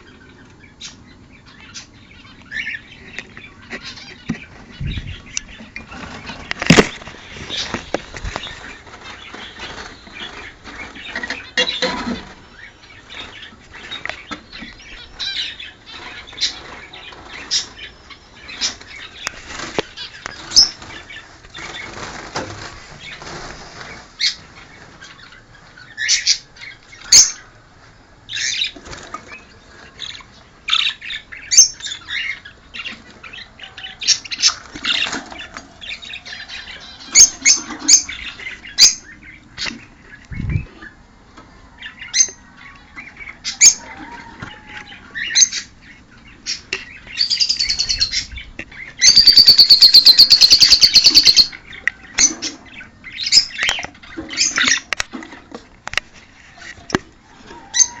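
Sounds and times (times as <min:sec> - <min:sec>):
birds chirping: 0:00.0 - 0:58.0
wings flapping and scuffling: 0:03.0 - 0:25.4, 0:26.9 - 0:30.2, 0:33.9 - 0:41.0.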